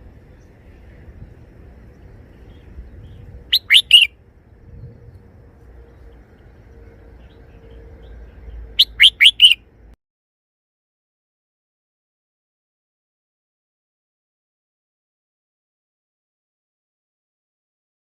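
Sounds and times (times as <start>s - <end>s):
bird singing short phrases: 2.3s - 4.1s, 7.2s - 9.6s.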